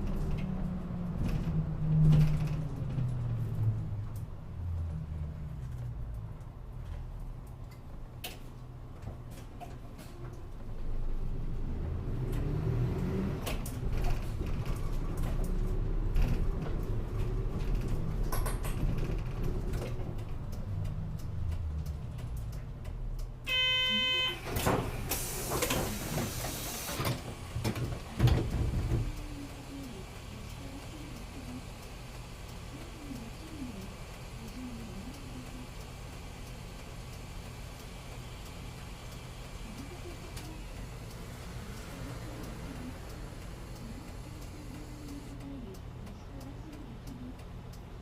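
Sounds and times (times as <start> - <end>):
bus engine and road rumble: 0.0 - 48.0
compressed air hiss of doors: 24.9 - 27.3.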